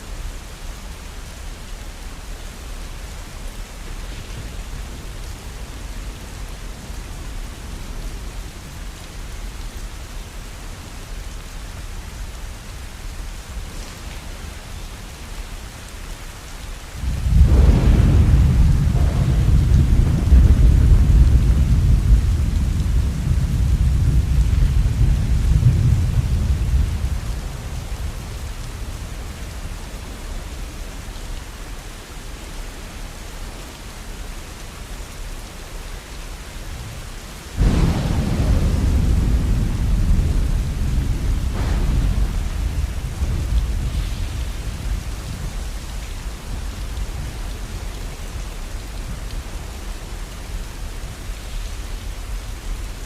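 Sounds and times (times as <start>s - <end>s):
steady falling rain: 0.0s - 53.0s
thunder rolling: 17.0s - 29.7s, 37.6s - 47.9s.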